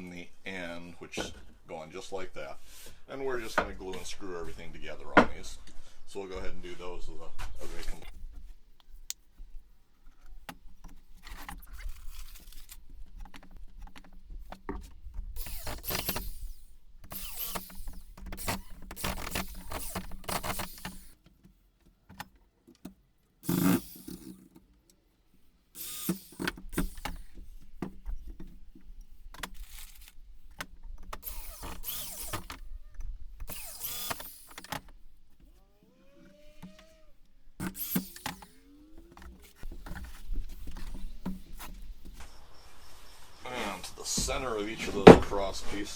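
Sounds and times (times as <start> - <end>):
power drill driving screws: 10.2 - 21.2, 23.4 - 24.5, 25.7 - 45.9.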